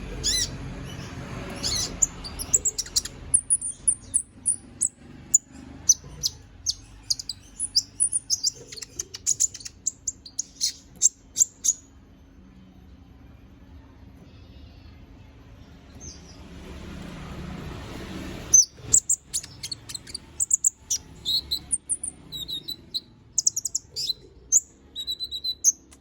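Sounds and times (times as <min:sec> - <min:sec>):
sunbird chirping and twittering: 0:00.0 - 0:11.9, 0:17.9 - 0:26.0.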